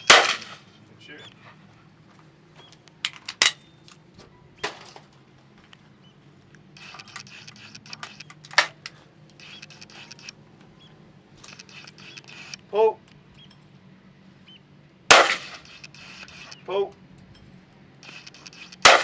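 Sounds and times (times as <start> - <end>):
shotgun metallic clicks and clacks: 0.0 - 0.6, 3.0 - 4.0, 6.8 - 10.4, 11.4 - 13.2, 15.1 - 16.6, 18.0 - 19.0.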